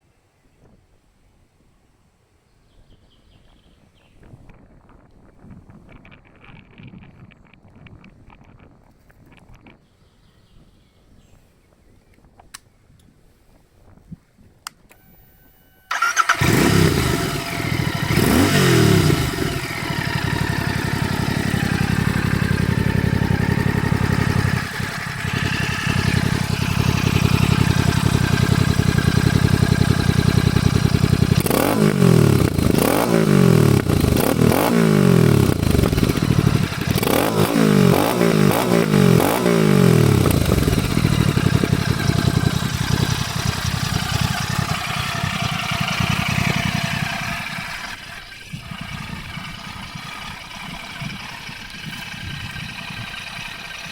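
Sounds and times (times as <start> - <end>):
motorcycle engine idling and revving: 15.9 - 53.9.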